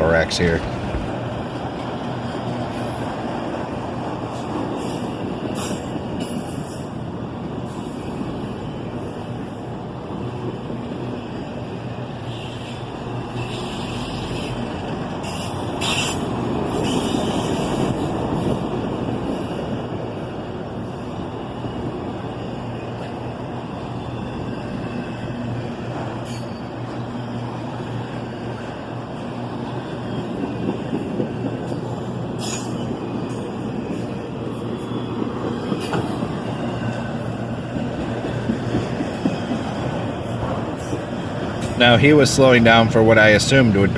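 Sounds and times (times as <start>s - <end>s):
train wheel and rail rumble: 0.0s - 43.9s
train wheel squeals: 4.3s - 9.6s, 12.1s - 28.1s, 29.6s - 41.8s.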